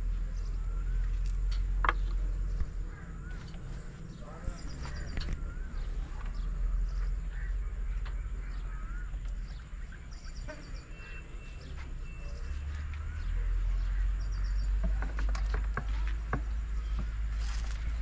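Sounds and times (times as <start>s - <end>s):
steady low rumble: 0.0s - 10.3s
birds chirping and trilling: 0.0s - 18.0s.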